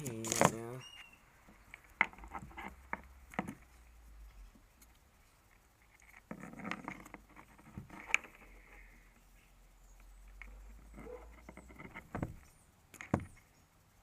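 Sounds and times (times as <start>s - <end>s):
plastic connectors clicking: 0.0s - 0.6s.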